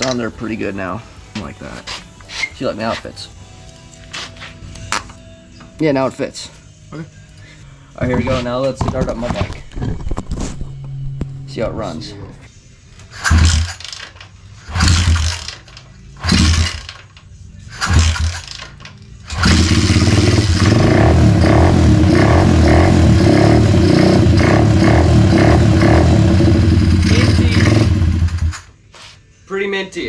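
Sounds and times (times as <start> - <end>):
dirt bike engine starting: 13.1 - 17.1, 17.7 - 28.6.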